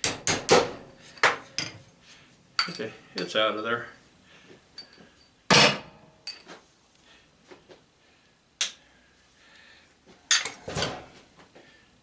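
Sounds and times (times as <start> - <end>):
metal tools handled on workbench: 1.0 - 1.9, 2.6 - 3.7, 4.8 - 6.6, 10.3 - 11.0.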